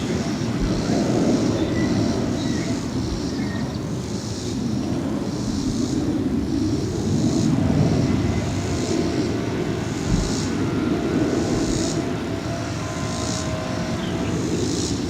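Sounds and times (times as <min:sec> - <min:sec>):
airliner rumble: 0:00.0 - 0:15.0
high buzzing: 0:05.3 - 0:15.0.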